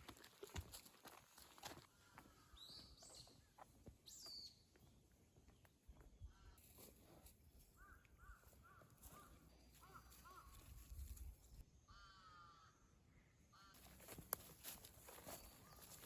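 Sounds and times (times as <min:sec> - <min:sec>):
crow cawing: 0:07.8 - 0:10.7, 0:11.9 - 0:12.8.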